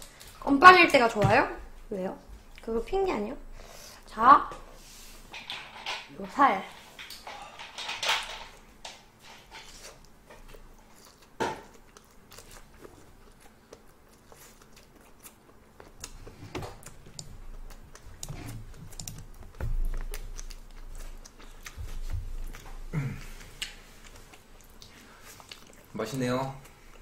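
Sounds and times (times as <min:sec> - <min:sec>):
shrimp crunching chewing: 0:09.2 - 0:27.0.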